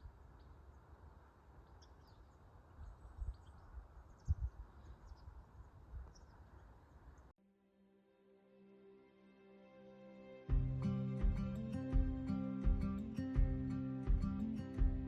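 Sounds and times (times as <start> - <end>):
faint bird chirps: 0.0 - 7.3.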